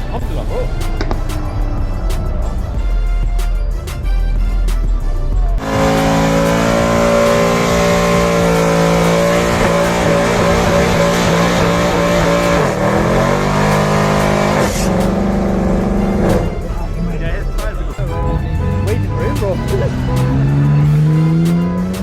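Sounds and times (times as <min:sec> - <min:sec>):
car engine revving high: 0:00.0 - 0:22.0.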